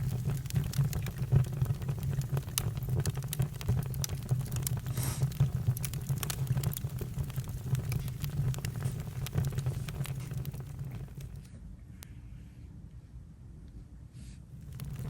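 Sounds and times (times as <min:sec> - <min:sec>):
campfire crackling and popping: 0:00.0 - 0:11.5, 0:14.6 - 0:15.0
fire hiss: 0:04.6 - 0:11.3.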